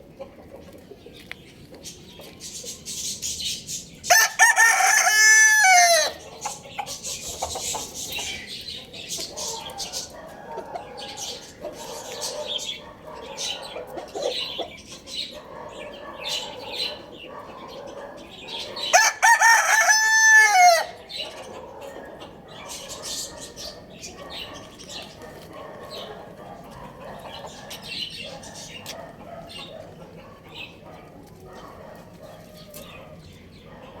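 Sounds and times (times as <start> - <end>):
chickens clucking: 0.0 - 34.0
rooster crowing: 4.1 - 6.3, 18.8 - 21.0.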